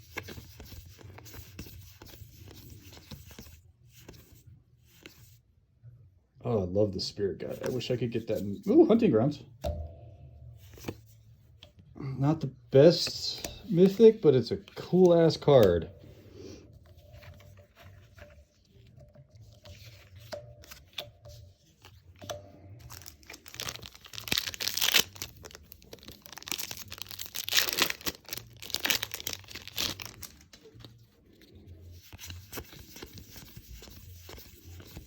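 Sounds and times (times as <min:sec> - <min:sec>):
foil wrapper tearing and crinkling: 0:22.8 - 0:30.9.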